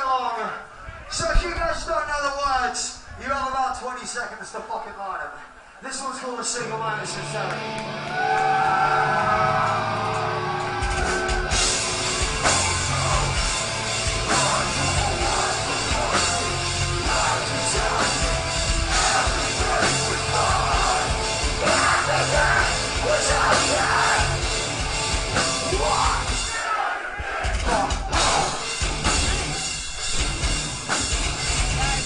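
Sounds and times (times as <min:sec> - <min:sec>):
drums: 0:00.0 - 0:04.6, 0:07.0 - 0:32.0
distorted guitars: 0:06.6 - 0:32.0
metalcore band playing live: 0:07.0 - 0:26.6, 0:27.4 - 0:32.0
vocals sung and yelled: 0:08.4 - 0:29.7.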